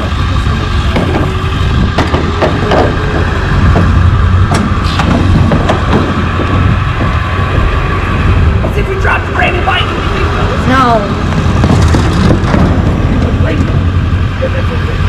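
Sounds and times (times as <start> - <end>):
engine running with low rumble: 0.0 - 15.0
knocks and clatters: 0.8 - 8.8, 11.2 - 14.0.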